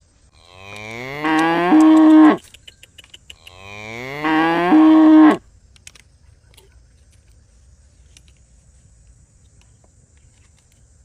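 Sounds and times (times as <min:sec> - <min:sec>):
cow mooing: 0:00.4 - 0:02.4, 0:03.5 - 0:05.4.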